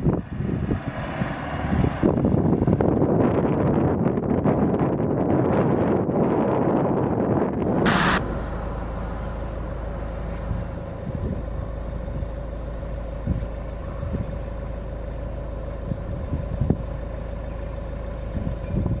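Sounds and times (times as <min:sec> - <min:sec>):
car engine idling: 0:07.6 - 0:19.0.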